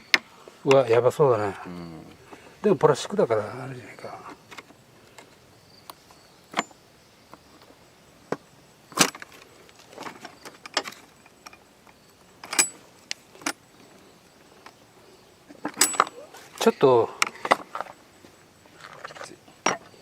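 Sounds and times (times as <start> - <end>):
hand tools clinking on metal: 10.0 - 13.6, 15.6 - 18.0.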